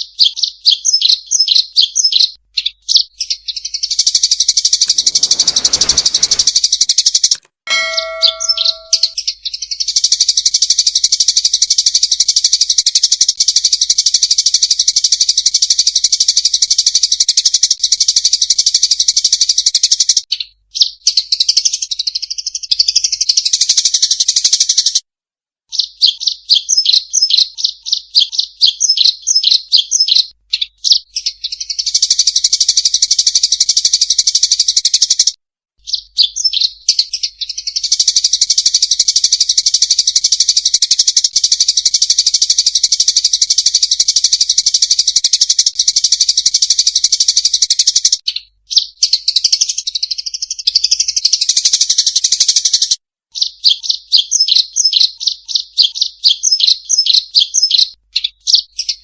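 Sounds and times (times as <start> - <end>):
sparrows chirping rapidly: 0.0 - 6.7, 35.8 - 40.3, 47.0 - 59.0.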